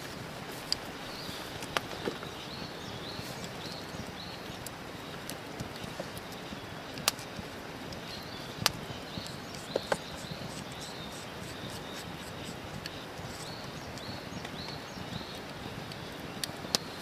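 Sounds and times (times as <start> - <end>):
campfire crackling and popping: 0.0 - 17.0
faint high chirping: 5.8 - 17.0.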